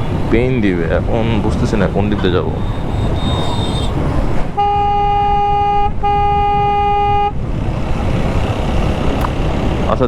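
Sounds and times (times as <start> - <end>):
motorcycle wind and engine rumble: 0.0 - 10.0
vehicle horn blasts: 2.6 - 7.4.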